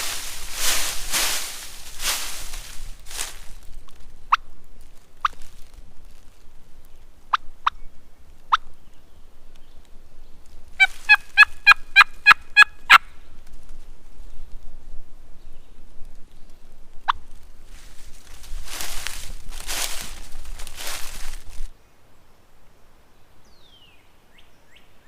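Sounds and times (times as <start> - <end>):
turkey call clucks: 10.8 - 13.1
turkey call yelps: 10.8 - 13.1.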